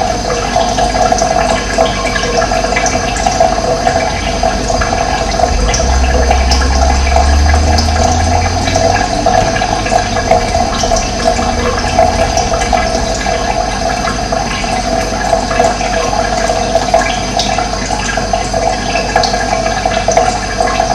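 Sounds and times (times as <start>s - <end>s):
running water: 0.0s - 20.9s
low rumble: 4.0s - 15.8s.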